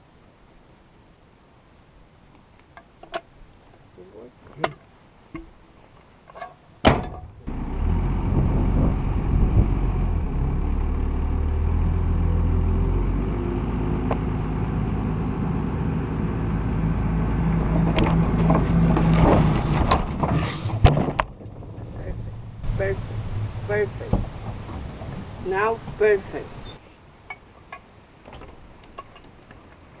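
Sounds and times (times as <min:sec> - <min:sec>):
vehicle engine running: 0:07.4 - 0:26.5
sharp knocks and clatters: 0:17.7 - 0:21.9.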